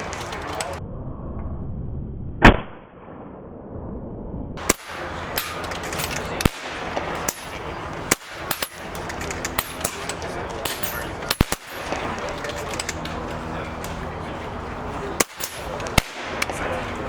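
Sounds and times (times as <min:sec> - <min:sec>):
air rifle shots: 0:04.6 - 0:13.2, 0:15.1 - 0:17.0.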